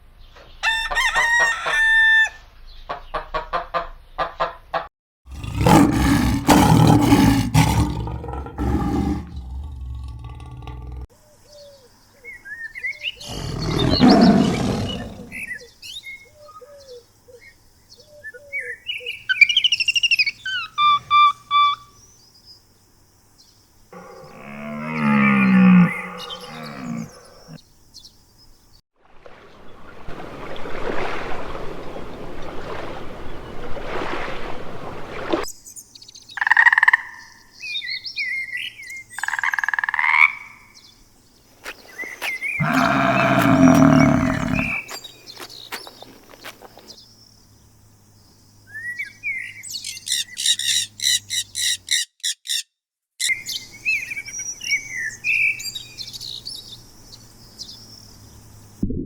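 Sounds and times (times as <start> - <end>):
loud noisy animal call: 5.3 - 11.0, 13.2 - 15.5, 24.0 - 27.6, 42.3 - 45.0
rising and falling animal call: 5.3 - 11.1, 13.2 - 15.5, 24.0 - 27.6, 42.0 - 45.0
short pitched animal calls: 42.0 - 45.0.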